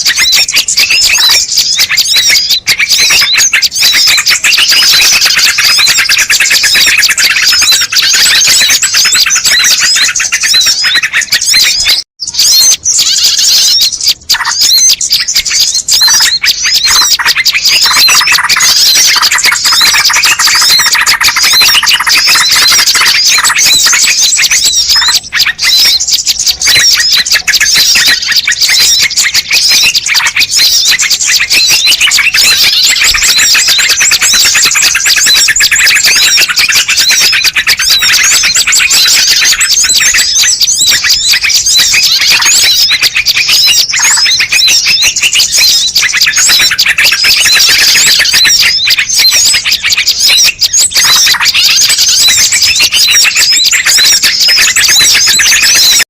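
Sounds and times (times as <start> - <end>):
small birds chirping and twittering: 0.0 - 56.0.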